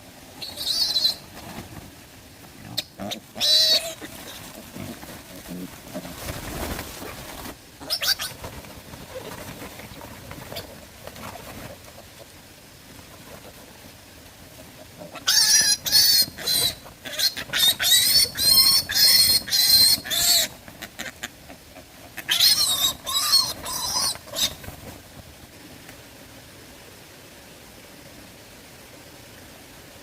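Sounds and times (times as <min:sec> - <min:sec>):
animal high-pitched cries: 0:00.4 - 0:01.2, 0:02.8 - 0:04.5, 0:07.8 - 0:08.4, 0:15.1 - 0:21.3, 0:22.2 - 0:24.6.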